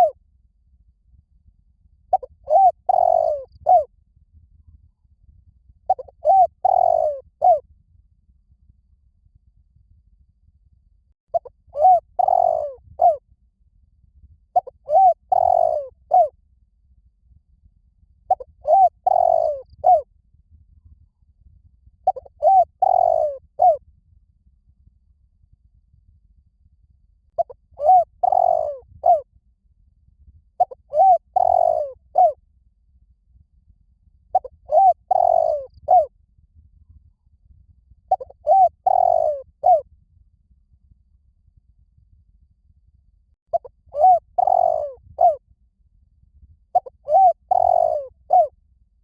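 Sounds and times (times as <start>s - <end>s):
dove cooing: 2.1s - 3.9s, 5.9s - 7.6s, 11.4s - 13.2s, 14.6s - 16.3s, 18.3s - 20.0s, 22.1s - 23.8s, 27.4s - 29.2s, 30.6s - 32.4s, 34.4s - 36.1s, 38.1s - 39.8s, 43.5s - 45.4s, 46.8s - 48.5s.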